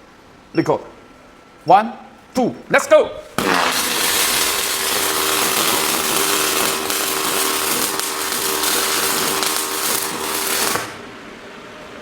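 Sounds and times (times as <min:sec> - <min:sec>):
welding torch crackling hiss: 0:03.2 - 0:11.2.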